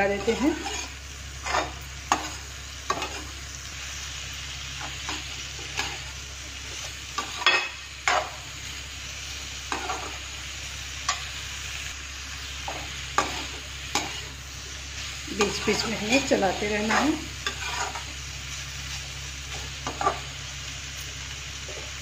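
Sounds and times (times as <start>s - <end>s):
vegetables sizzling in oil: 0.0s - 22.0s
metal spoon scraping pan: 0.1s - 3.3s, 12.7s - 14.3s, 15.3s - 18.1s.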